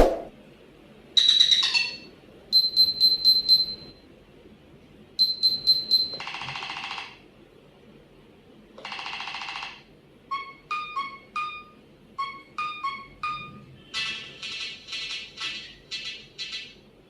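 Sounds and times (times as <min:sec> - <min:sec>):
buzzy synthetic ringtone: 0:01.2 - 0:04.0, 0:05.2 - 0:07.0, 0:10.3 - 0:14.6.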